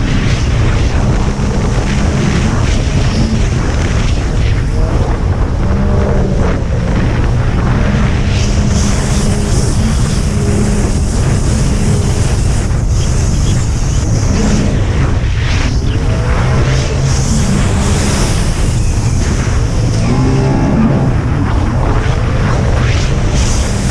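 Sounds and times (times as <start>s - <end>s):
jet ski engine running hard: 0.0s - 23.9s
water noise: 0.0s - 23.9s
wind buffeting microphone: 0.0s - 23.9s
high hiss: 7.9s - 14.8s.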